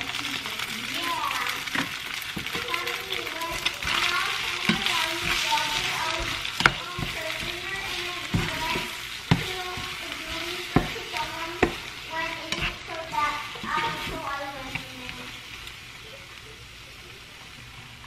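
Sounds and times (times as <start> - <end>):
eggs sizzling in a pan: 0.0 - 18.0
utensil knocking against pan: 10.7 - 11.8.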